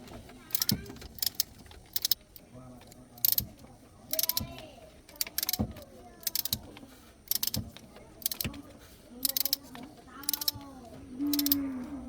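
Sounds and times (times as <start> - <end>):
metal tools clinking: 0.5 - 2.5, 6.2 - 6.6, 7.3 - 7.6, 8.2 - 8.5, 9.2 - 10.6, 11.3 - 11.6.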